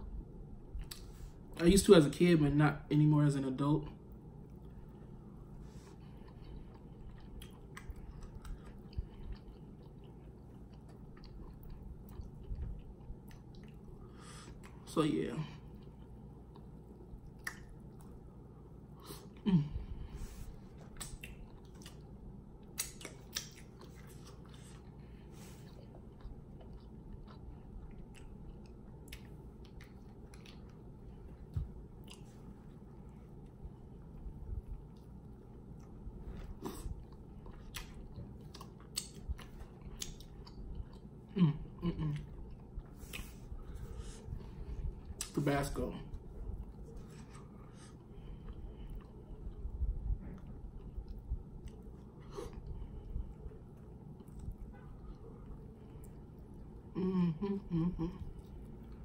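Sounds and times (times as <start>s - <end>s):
man chewing food: 0.0s - 1.6s, 3.9s - 14.9s, 15.5s - 59.0s
wet mouth clicks: 17.3s - 17.8s, 20.8s - 22.0s, 22.7s - 23.7s.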